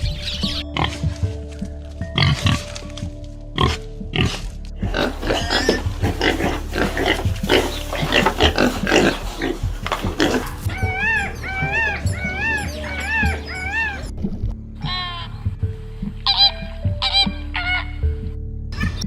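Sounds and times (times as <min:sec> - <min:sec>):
pigs grunting and squealing: 0:02.2 - 0:02.7, 0:03.6 - 0:14.1.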